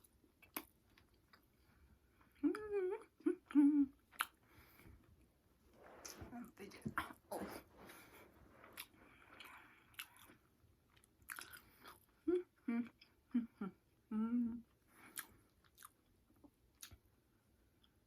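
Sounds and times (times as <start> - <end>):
person chewing and crunching food: 0.0 - 2.4, 3.5 - 4.8, 7.0 - 13.4, 15.0 - 17.1.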